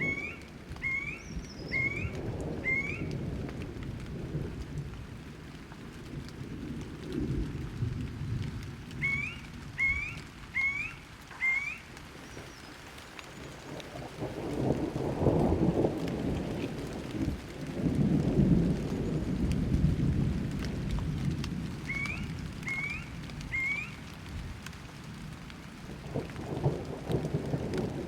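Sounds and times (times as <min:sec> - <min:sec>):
bird chirping: 0:00.0 - 0:03.1, 0:09.0 - 0:13.7
rolling thunder: 0:00.0 - 0:05.4, 0:06.0 - 0:10.6, 0:13.8 - 0:24.5, 0:25.8 - 0:28.0
rain: 0:00.0 - 0:28.0.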